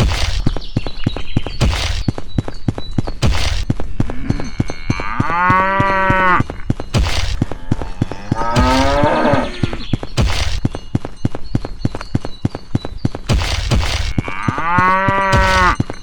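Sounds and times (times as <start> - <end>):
cow mooing: 4.1 - 6.6, 7.4 - 9.9, 14.1 - 15.8
sharp clicks and knocks: 13.2 - 14.2.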